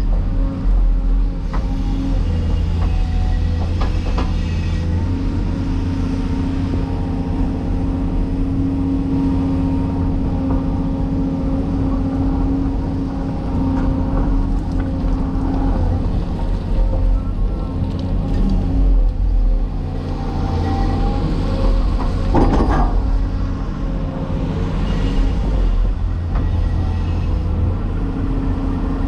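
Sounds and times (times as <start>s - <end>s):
heavy diesel machinery running: 0.0s - 29.0s.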